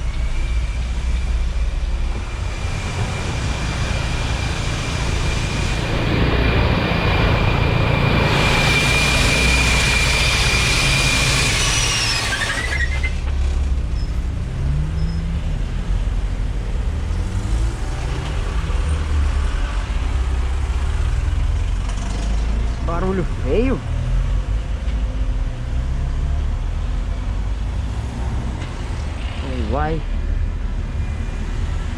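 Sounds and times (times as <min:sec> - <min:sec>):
bus engine low rumble: 0:00.0 - 0:11.6, 0:13.1 - 0:31.9
high whine and hiss: 0:00.0 - 0:12.7.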